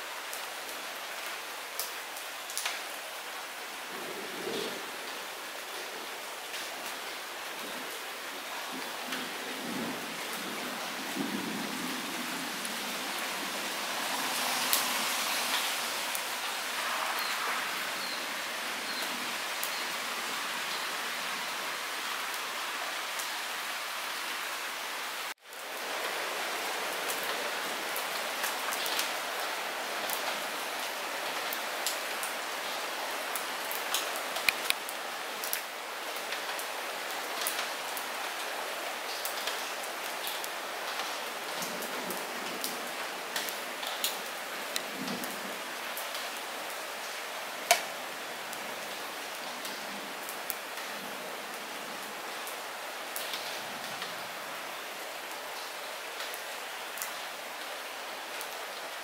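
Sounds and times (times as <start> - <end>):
light rain falling: 0.0 - 59.0
raindrop ticks: 33.9 - 35.7, 47.7 - 48.0.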